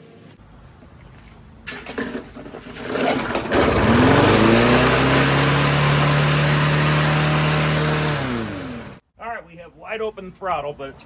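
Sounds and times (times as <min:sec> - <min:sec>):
lawnmower engine starting and running: 0:01.6 - 0:09.0.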